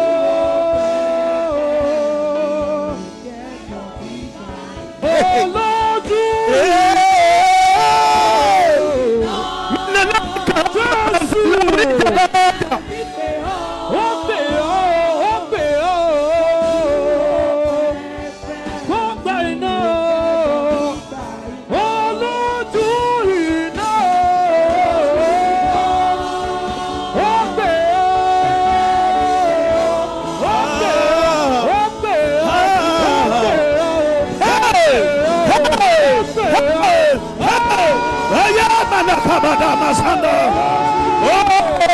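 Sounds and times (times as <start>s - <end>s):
worship music: 0.0s - 41.9s
person singing long bending notes: 30.4s - 34.2s.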